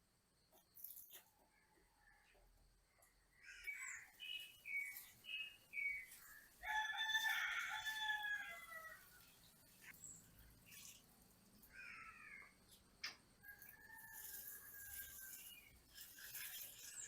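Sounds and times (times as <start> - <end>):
rooster crowing: 6.6 - 9.2, 13.4 - 15.2.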